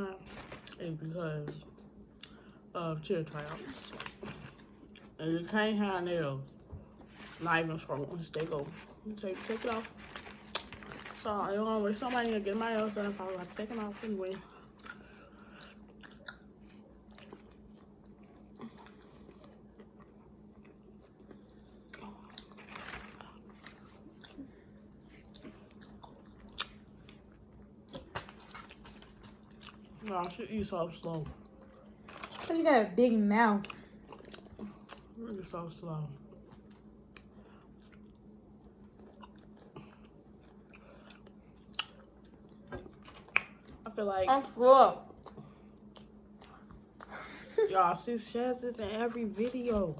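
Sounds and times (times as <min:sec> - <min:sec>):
steady low hum: 0:00.0 - 0:49.9
faint chewing and biting: 0:08.4 - 0:11.2, 0:12.1 - 0:32.5, 0:33.6 - 0:35.2, 0:36.2 - 0:43.8, 0:45.2 - 0:47.2.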